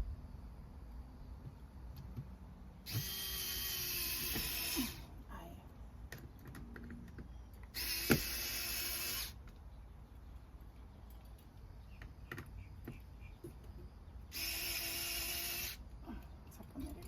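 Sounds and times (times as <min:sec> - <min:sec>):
cordless drill driving screw: 0:02.9 - 0:05.0, 0:07.7 - 0:09.4, 0:14.3 - 0:15.8.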